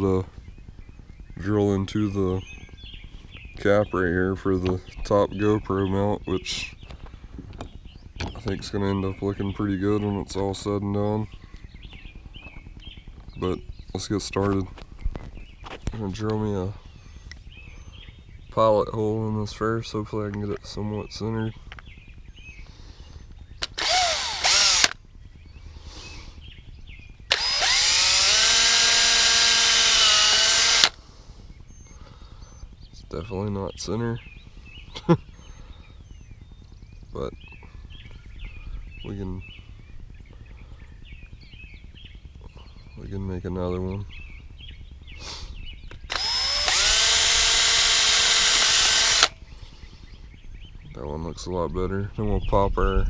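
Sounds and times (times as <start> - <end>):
power drill boring into plastic: 23.6 - 25.0, 27.3 - 31.0, 45.9 - 49.4.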